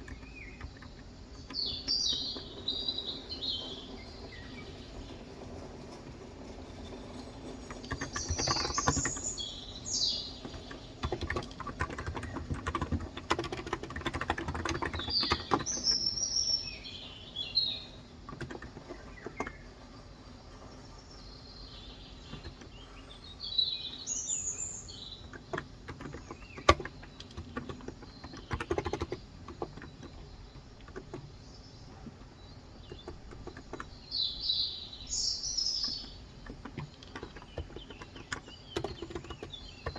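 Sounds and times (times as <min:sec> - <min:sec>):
birds chirping: 0:00.0 - 0:39.9
typing on a keyboard: 0:07.6 - 0:09.4, 0:10.4 - 0:16.0, 0:18.3 - 0:19.6, 0:25.3 - 0:31.3, 0:32.8 - 0:34.0, 0:35.8 - 0:39.9.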